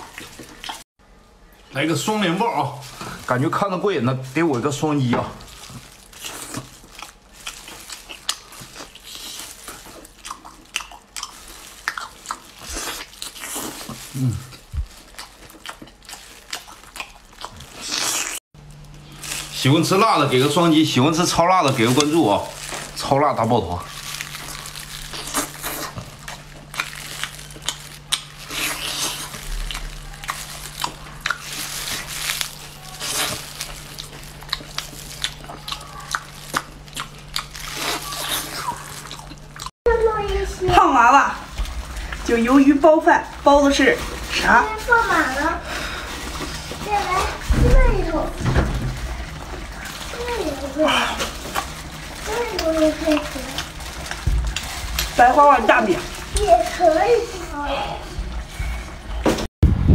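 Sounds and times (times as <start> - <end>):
person chewing octopus: 0.0 - 0.8, 5.5 - 19.6, 23.8 - 39.8, 48.9 - 55.2
low hum from eater: 0.0 - 59.9.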